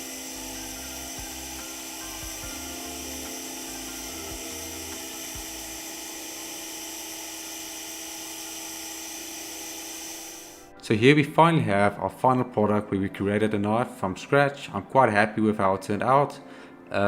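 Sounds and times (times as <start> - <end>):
background music: 0.0 - 8.8, 10.1 - 17.0
electric sander whining: 0.0 - 10.8.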